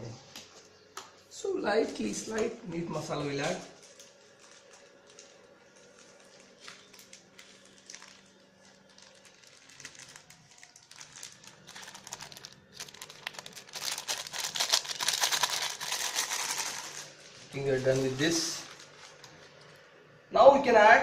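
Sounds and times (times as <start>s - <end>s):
packet rustling and crinkling: 3.4s - 19.9s.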